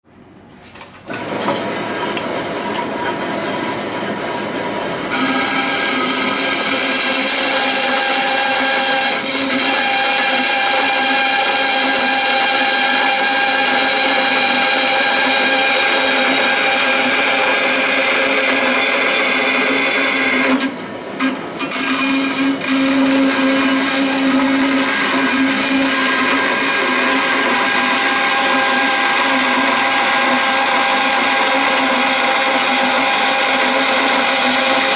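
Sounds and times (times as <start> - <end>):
electric hand tool whining: 5.1 - 34.9.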